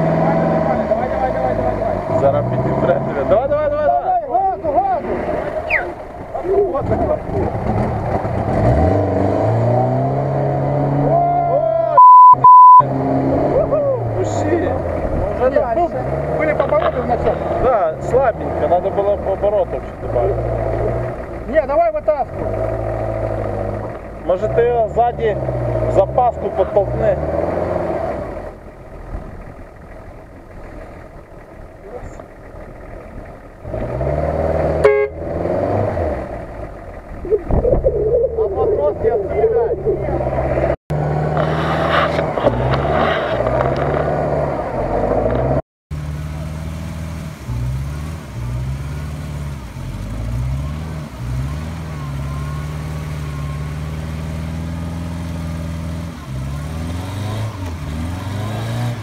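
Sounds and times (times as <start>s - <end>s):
car engine running: 0.0s - 59.0s
censor bleeps: 12.0s - 12.9s
car horn toot: 34.8s - 35.3s.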